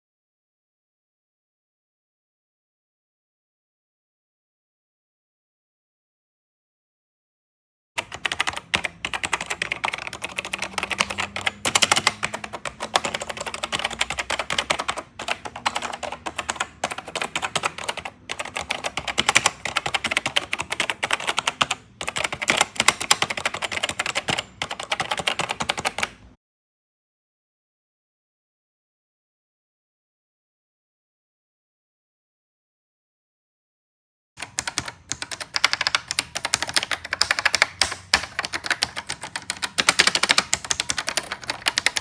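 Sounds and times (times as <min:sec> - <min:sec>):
fast keyboard typing: 0:08.0 - 0:26.3, 0:34.4 - 0:42.0.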